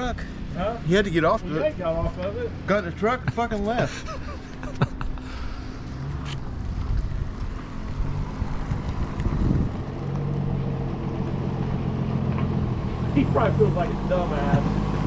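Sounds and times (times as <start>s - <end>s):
vehicle engine running: 0.0s - 15.0s
wind on microphone: 6.4s - 10.0s.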